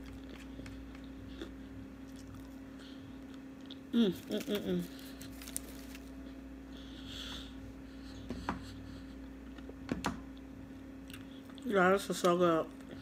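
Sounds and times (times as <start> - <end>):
person chewing with mouth closed: 0.0 - 5.9
steady low hum: 0.0 - 13.0.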